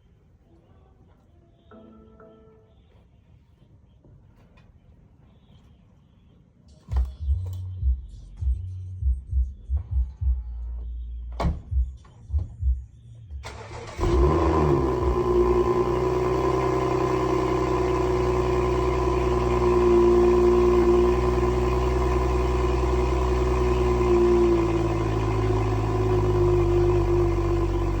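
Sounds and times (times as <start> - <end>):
car engine idling: 13.4 - 28.0.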